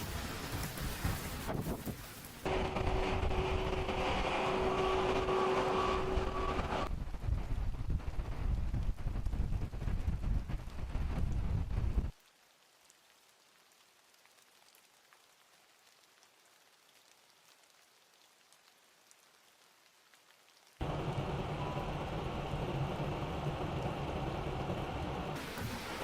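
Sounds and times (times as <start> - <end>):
steady hiss: 0.0 - 2.5
wind buffeting microphone: 6.0 - 12.1.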